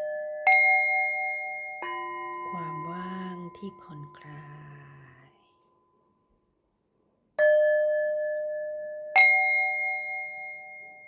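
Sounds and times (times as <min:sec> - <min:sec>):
singing bowl ringing: 0:00.0 - 0:03.8, 0:07.4 - 0:11.0.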